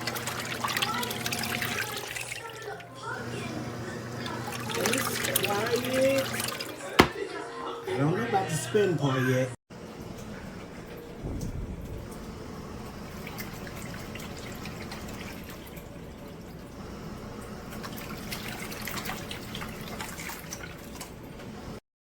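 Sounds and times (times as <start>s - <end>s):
small water splashes: 0.0s - 2.9s, 4.3s - 6.8s
water sloshing and dripping: 0.0s - 3.2s, 4.2s - 7.2s, 9.9s - 21.5s.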